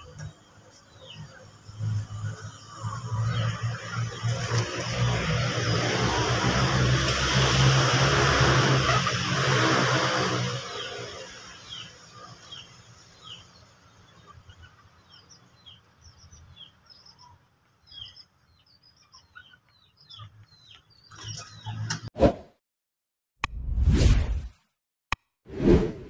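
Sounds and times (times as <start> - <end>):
small birds chirping: 0.0 - 6.9, 8.8 - 22.1.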